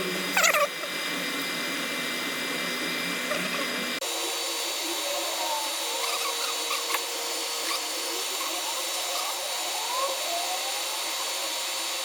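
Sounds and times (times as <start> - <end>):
laser machine whirring hum: 0.0 - 12.0.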